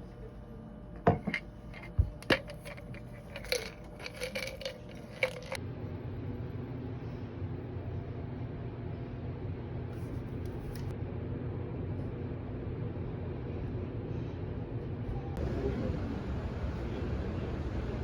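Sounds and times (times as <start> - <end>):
hard objects clinking and knocking: 1.0 - 5.6.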